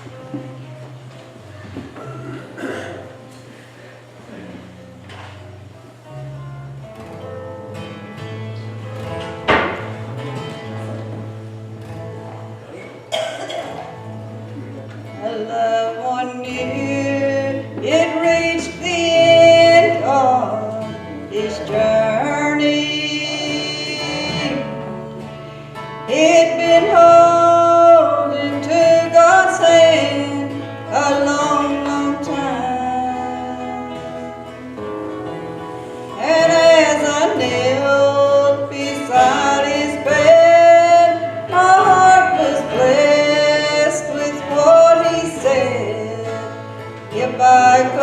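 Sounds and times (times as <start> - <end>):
guitar: 0.0 - 48.0
person singing: 15.0 - 25.4, 26.0 - 34.8, 36.1 - 48.0.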